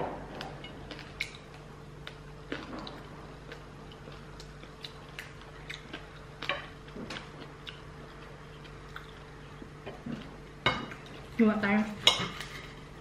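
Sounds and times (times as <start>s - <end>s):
faint steady hum: 0.0s - 13.0s
crunchy chewing: 0.8s - 10.4s.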